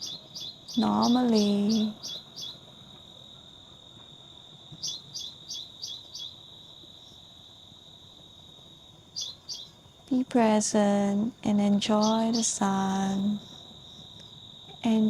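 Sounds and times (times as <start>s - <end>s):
bird chirping: 0.0s - 2.7s, 4.8s - 6.4s, 9.1s - 9.8s, 11.8s - 14.3s
high-pitched insect drone: 0.0s - 2.7s, 4.8s - 7.2s, 9.2s - 15.0s.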